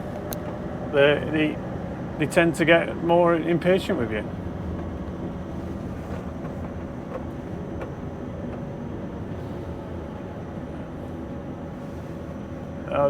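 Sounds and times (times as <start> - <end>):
diesel lorry engine running: 0.0 - 13.0.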